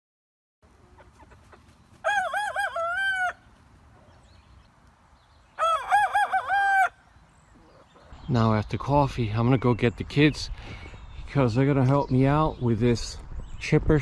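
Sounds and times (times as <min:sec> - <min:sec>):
rooster crowing: 0:02.0 - 0:03.5, 0:05.6 - 0:07.1.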